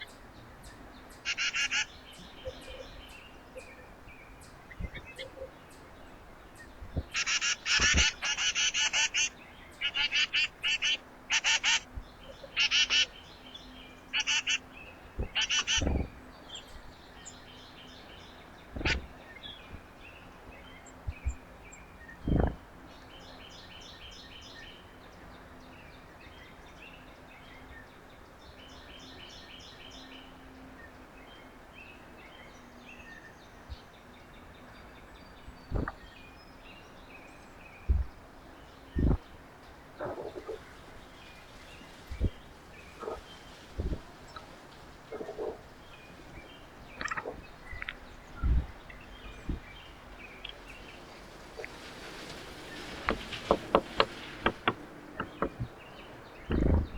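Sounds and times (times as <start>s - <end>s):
faint steady hiss: 0.0s - 56.9s
songbirds chirping: 0.0s - 56.9s
cluster of clicks: 47.0s - 48.1s, 50.4s - 56.9s
dull thump: 56.5s - 56.9s.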